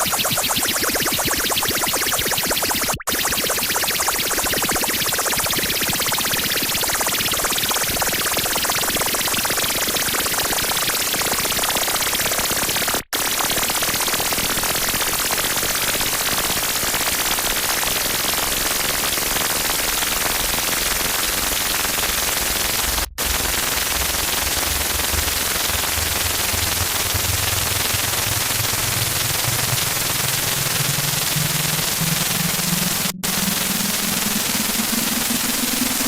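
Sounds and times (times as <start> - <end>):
distorted static noise: 23.2 - 36.0
low drone: 23.2 - 36.0.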